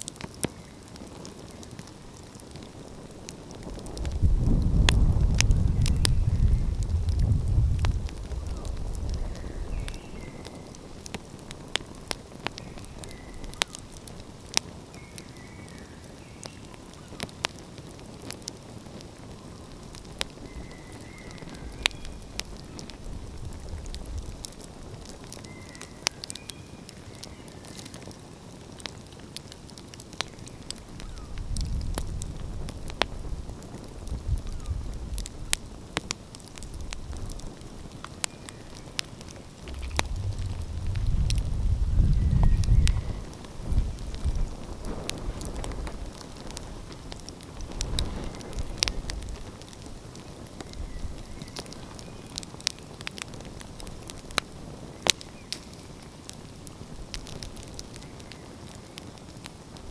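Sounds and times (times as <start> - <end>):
wood fire crackling and popping: 0.0 - 59.9
low rumble: 39.4 - 43.9.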